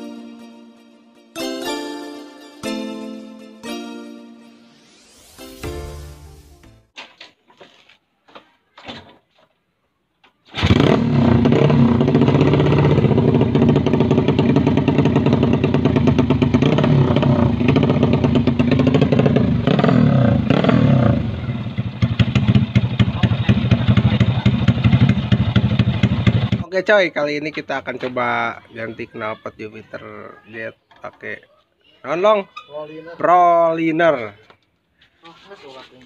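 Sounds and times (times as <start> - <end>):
choppy racing exhaust: 10.6 - 26.7
motorcycle engine running: 10.6 - 26.7.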